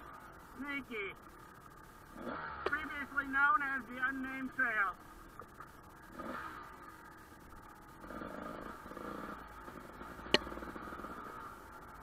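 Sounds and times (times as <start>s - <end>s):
motorcycle engine at low revs: 1.2s - 4.2s, 4.9s - 12.0s.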